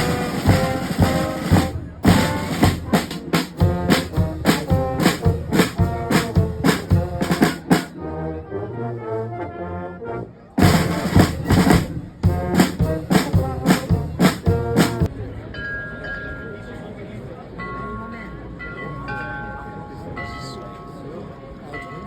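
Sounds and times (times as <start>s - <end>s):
drums beating: 0.0s - 7.9s, 10.6s - 15.1s
brass band playing: 0.0s - 15.1s.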